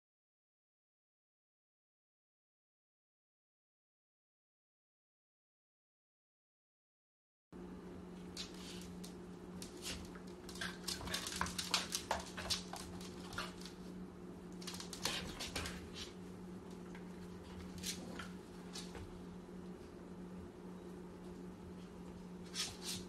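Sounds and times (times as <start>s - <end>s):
steady low hum: 7.6s - 23.0s.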